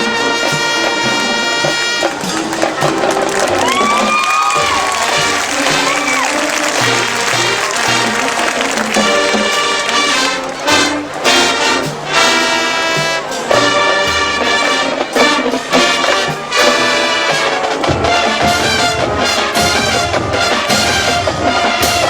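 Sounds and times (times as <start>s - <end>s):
marching band brass playing: 0.0s - 22.0s.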